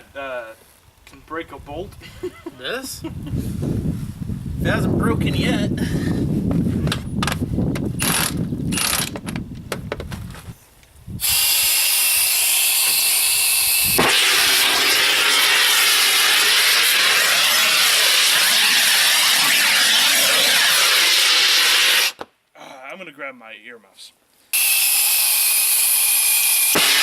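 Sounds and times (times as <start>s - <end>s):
blow torch hissing: 11.2s - 22.2s, 24.6s - 27.0s
sharp pop: 13.9s - 22.3s, 26.7s - 27.0s.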